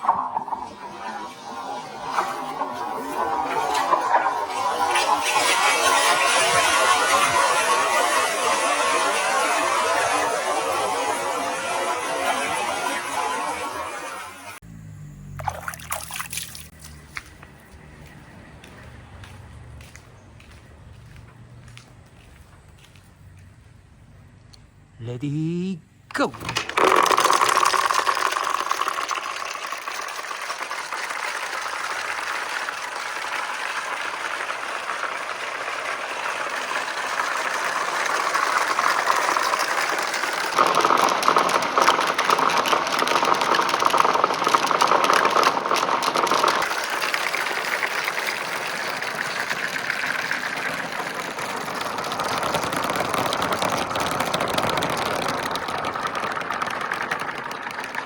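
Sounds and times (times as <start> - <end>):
glass marbles rolling and clattering: 0.0 - 13.8, 26.4 - 58.0.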